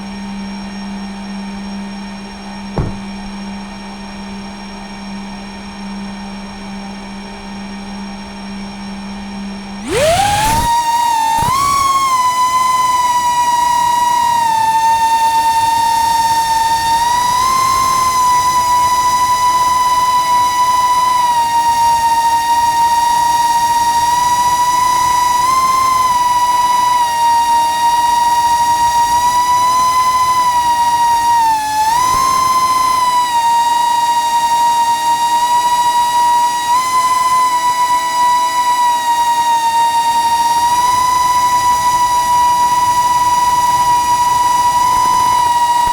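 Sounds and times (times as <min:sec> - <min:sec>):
quadcopter motors whining: 0:02.8 - 0:03.2, 0:09.8 - 0:45.9.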